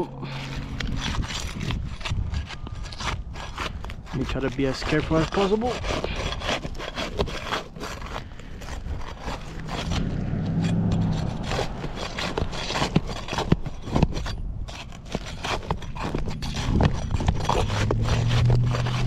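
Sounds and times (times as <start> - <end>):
low hum: 0.0 - 3.3, 8.3 - 15.1
tool scraping under shingles: 0.0 - 19.0
shingle clicks and crackles: 0.5 - 10.0, 11.5 - 19.0.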